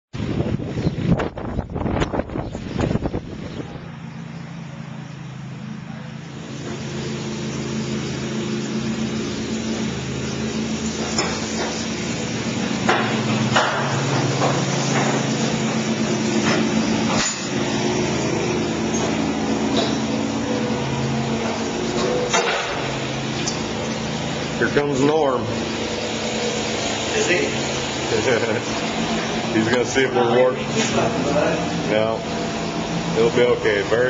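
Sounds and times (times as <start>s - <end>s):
low machine hum: 0.2s - 34.0s
sharp knocks: 12.8s - 15.2s.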